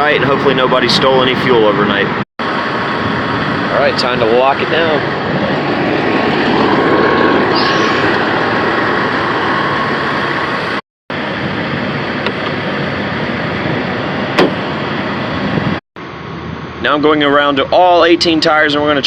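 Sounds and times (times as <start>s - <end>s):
truck machinery running: 2.1s - 15.7s.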